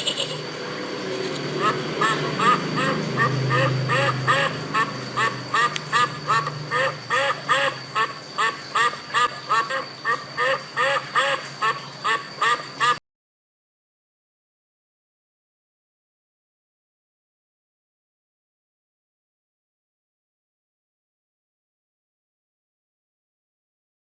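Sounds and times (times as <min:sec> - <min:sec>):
ducks quacking: 0:00.0 - 0:13.0.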